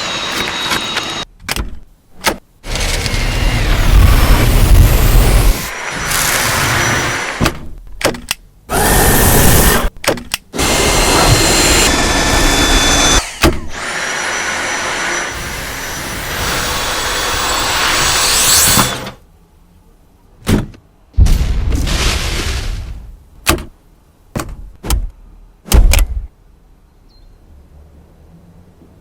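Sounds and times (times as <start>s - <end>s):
vacuum cleaner motor whirring: 2.7s - 7.4s, 10.6s - 18.2s.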